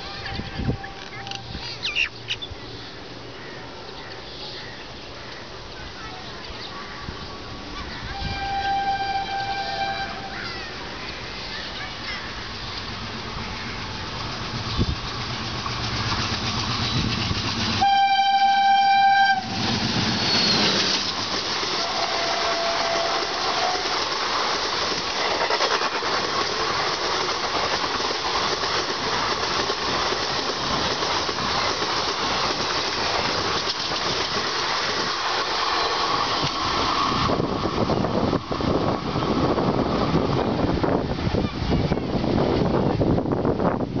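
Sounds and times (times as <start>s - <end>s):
train coaches rumbling past: 0.0s - 44.0s
locomotive horn blast: 8.1s - 10.4s, 17.8s - 19.9s, 21.8s - 24.0s.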